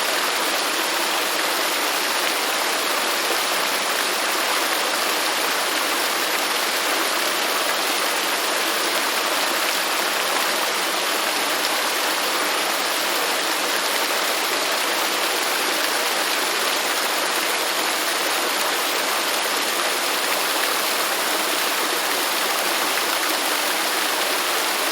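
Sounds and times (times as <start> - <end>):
waterfall rushing: 12.8 - 24.9.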